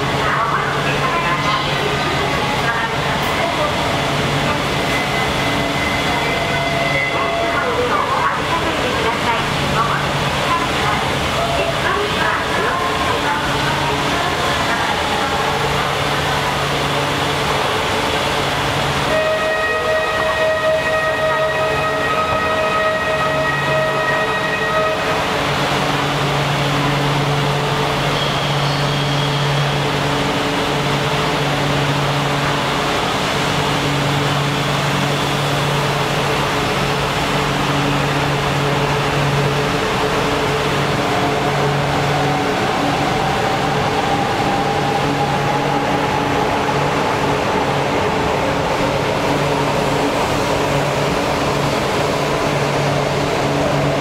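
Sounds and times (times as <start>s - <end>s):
train rushing with low hum: 0.0s - 54.0s.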